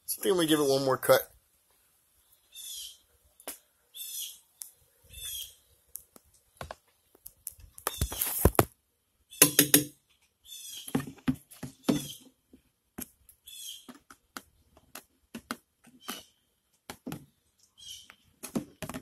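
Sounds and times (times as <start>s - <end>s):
bird chirping raspy calls: 2.4s - 3.1s, 3.9s - 5.8s, 10.4s - 10.9s, 11.7s - 12.3s, 13.4s - 13.9s, 17.6s - 18.2s.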